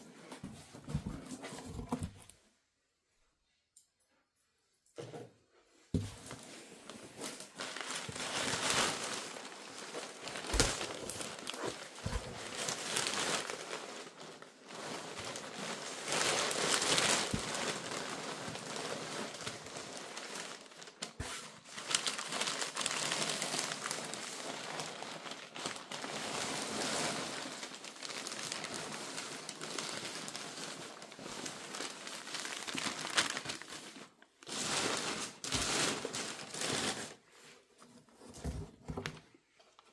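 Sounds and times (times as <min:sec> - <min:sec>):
packaging crinkling and rustling: 0:00.6 - 0:02.3, 0:06.0 - 0:39.9.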